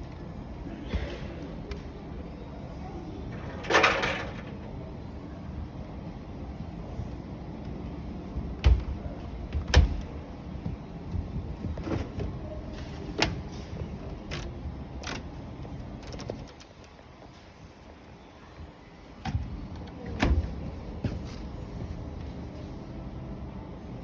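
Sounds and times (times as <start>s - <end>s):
steady low hum: 0.0s - 24.0s
washing machine doors clunking: 3.6s - 4.7s.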